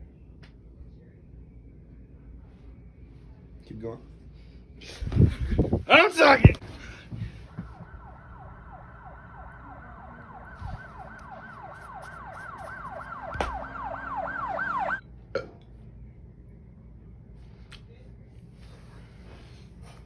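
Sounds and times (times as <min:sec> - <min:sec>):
electronic yelping siren: 0:07.2 - 0:15.0.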